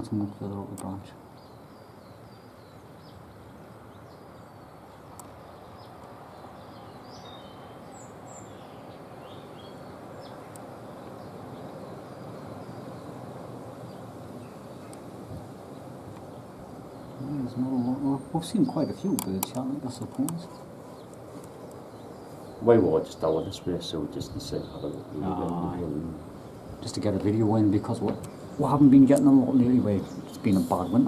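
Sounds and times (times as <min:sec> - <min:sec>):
outdoor background rush: 0:00.0 - 0:31.0
songbirds chirping: 0:00.0 - 0:31.0
sharp clicks: 0:19.1 - 0:21.8.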